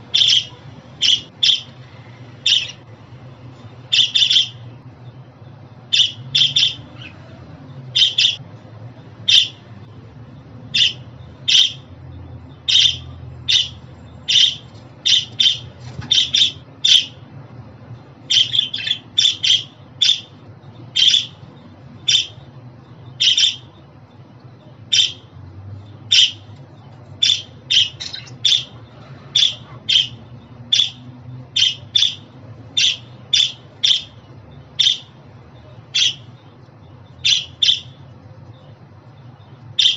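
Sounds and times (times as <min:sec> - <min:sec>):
budgerigar chirping: 0:00.1 - 0:01.8, 0:02.4 - 0:02.8, 0:03.9 - 0:04.6, 0:05.9 - 0:07.3, 0:07.9 - 0:08.4, 0:09.2 - 0:09.6, 0:10.7 - 0:11.9, 0:12.6 - 0:17.2, 0:18.3 - 0:22.5, 0:23.1 - 0:23.8, 0:24.9 - 0:25.3, 0:26.0 - 0:26.5, 0:27.2 - 0:38.0, 0:39.3 - 0:39.9.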